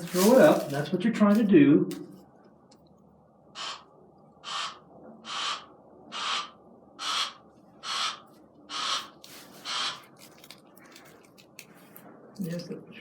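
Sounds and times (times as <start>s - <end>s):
owl hissing: 3.6s - 10.0s.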